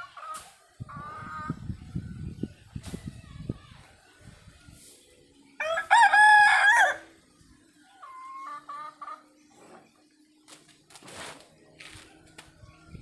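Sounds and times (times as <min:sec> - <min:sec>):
rooster crowing: 0:05.6 - 0:07.1.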